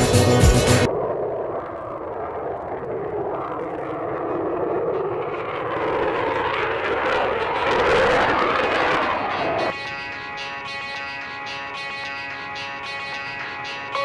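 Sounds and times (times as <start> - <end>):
jet engine roar: 0.6 - 14.0.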